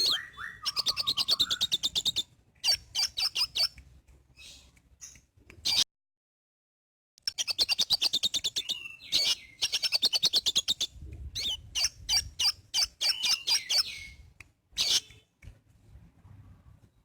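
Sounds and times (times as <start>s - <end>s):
bird singing trills and chirps: 0.0s - 3.8s, 7.2s - 15.3s.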